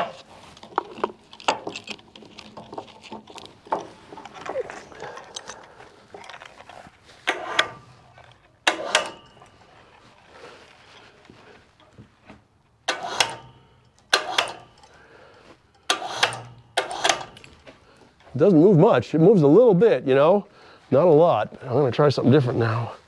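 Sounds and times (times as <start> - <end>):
log roller metallic clanks: 0.0 - 12.0, 12.8 - 18.4.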